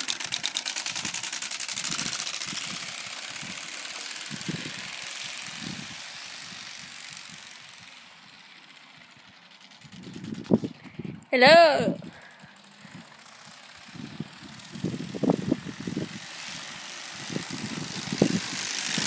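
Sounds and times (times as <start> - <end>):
cards clattering in bicycle spokes: 0.0 - 5.5.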